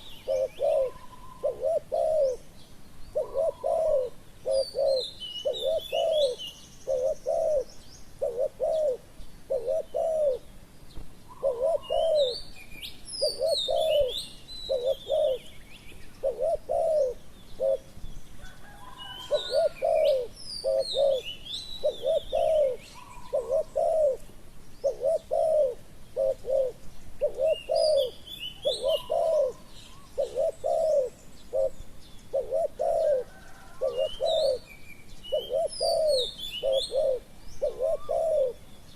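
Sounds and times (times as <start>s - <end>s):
dove cooing: 0.0s - 10.5s, 11.3s - 12.5s, 13.1s - 38.7s
small birds chirping: 0.0s - 38.9s.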